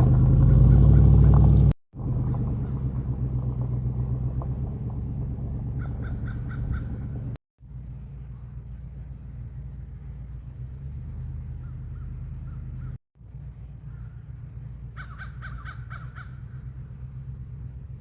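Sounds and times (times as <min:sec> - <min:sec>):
steady low rumble: 0:00.0 - 0:18.0
crow cawing: 0:05.8 - 0:07.0, 0:15.0 - 0:16.6.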